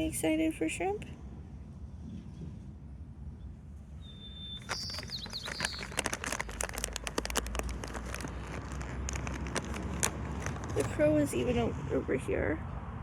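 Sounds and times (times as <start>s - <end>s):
high thin bird chirps: 4.0s - 6.6s
plastic packaging crinkling: 4.6s - 11.8s.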